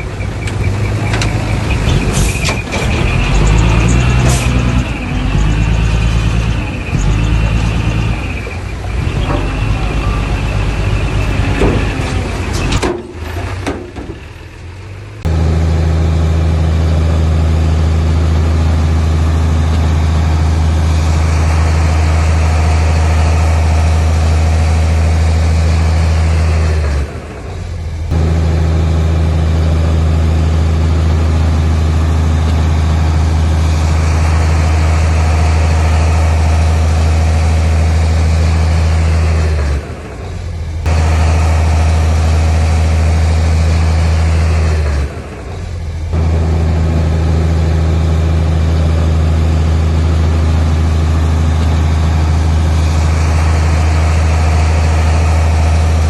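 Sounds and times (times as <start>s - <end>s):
heavy diesel engine droning: 0.0s - 56.0s.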